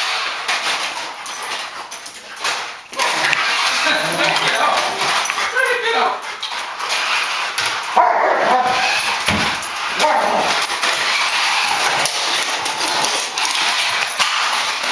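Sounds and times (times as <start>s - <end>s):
dog crying out: 3.0s - 5.6s, 7.9s - 13.3s.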